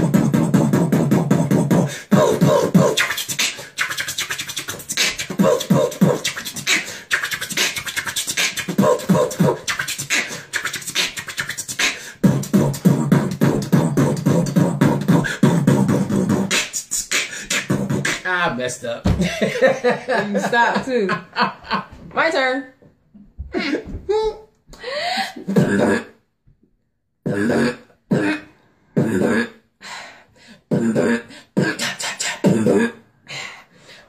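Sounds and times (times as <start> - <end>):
person beatboxing: 0.0 - 18.6, 25.3 - 26.2, 27.2 - 29.6, 30.7 - 33.0.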